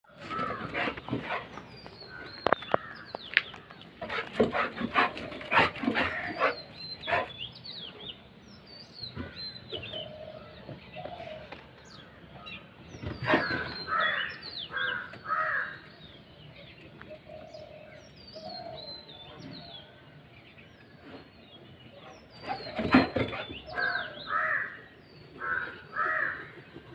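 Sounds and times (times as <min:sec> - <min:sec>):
crows cawing: 0:00.1 - 0:00.8, 0:13.4 - 0:15.8, 0:23.7 - 0:26.6.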